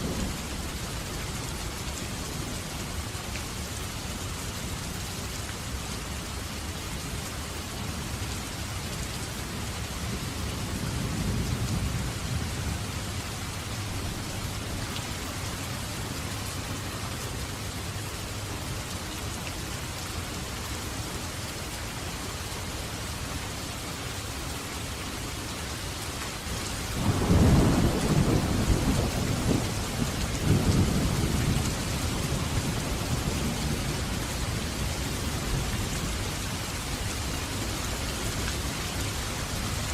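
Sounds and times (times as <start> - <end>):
heavy rain falling: 0.0 - 39.9
distant thunder rumbling: 27.0 - 34.7.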